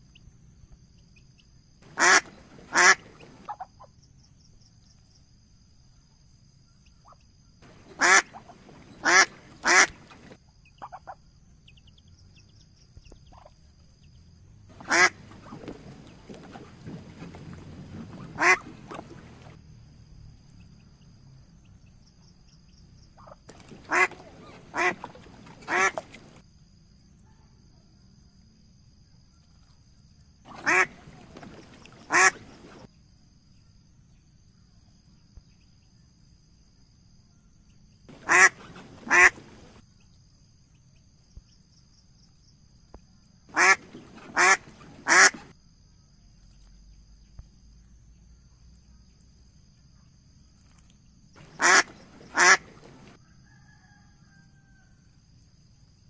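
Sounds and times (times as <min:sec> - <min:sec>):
duck quacking: 0:01.9 - 0:03.7, 0:07.7 - 0:10.1, 0:14.8 - 0:15.6, 0:18.1 - 0:19.2, 0:23.2 - 0:26.2, 0:30.5 - 0:31.2, 0:32.1 - 0:32.8, 0:38.1 - 0:39.8, 0:43.5 - 0:45.5, 0:51.4 - 0:53.1.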